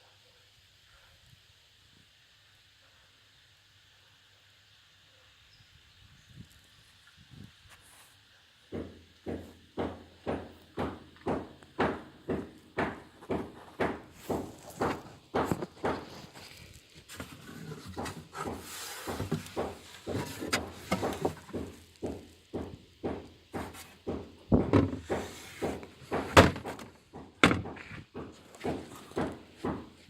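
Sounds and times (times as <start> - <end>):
irregular knocks and thuds: 8.8 - 30.0.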